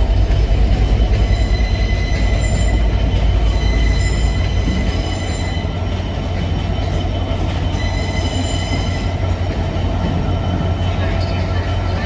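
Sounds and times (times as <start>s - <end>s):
diesel locomotive engine rumbling: 0.0s - 12.0s.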